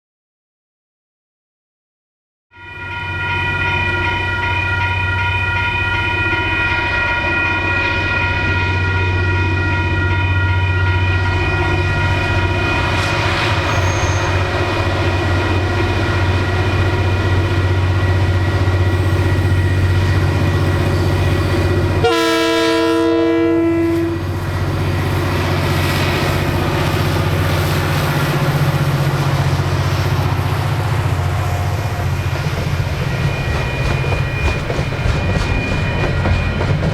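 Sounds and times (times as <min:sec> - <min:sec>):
diesel locomotive engine drone: 0:02.6 - 0:36.9
train horn blast: 0:18.9 - 0:24.8.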